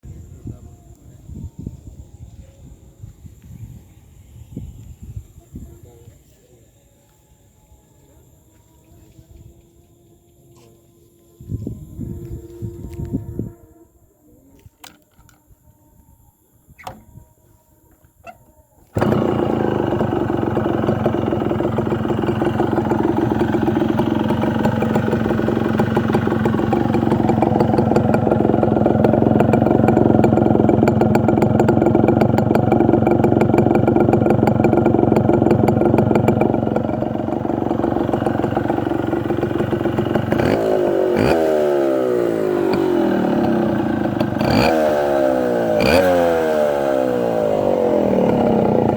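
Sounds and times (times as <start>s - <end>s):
two-stroke engine idling and revving: 18.9s - 48.9s.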